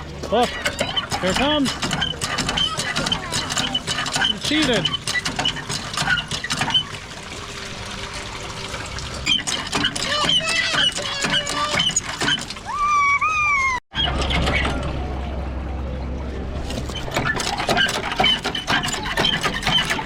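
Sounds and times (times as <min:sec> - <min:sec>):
short high squeaks: 0:00.4 - 0:07.0, 0:09.2 - 0:14.9
water pouring and trickling: 0:00.8 - 0:13.8
child squealing: 0:12.6 - 0:13.9.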